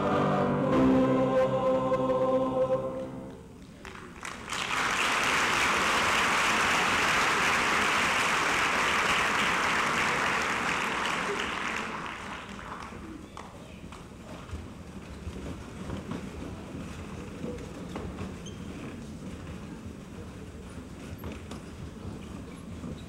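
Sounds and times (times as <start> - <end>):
choir singing held chord: 0.0 - 3.6
audience applause: 3.7 - 13.2.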